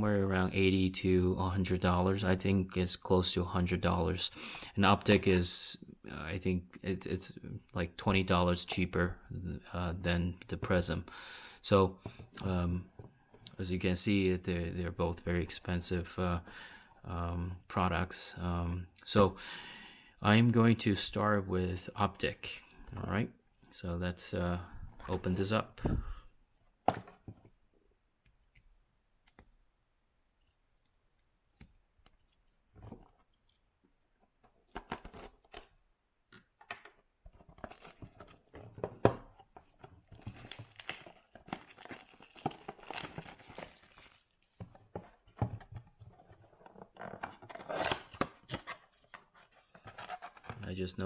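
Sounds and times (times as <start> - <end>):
cardboard box tearing open: 40.4 - 44.2, 47.6 - 48.3.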